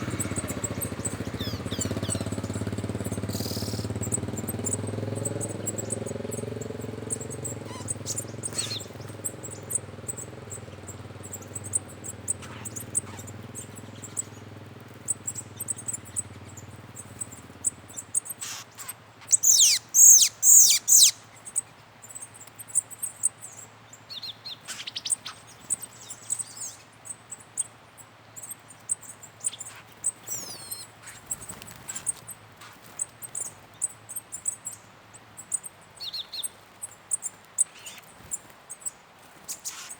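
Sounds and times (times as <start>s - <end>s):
low engine hum: 0.0s - 21.4s
birds chirping: 0.0s - 39.9s.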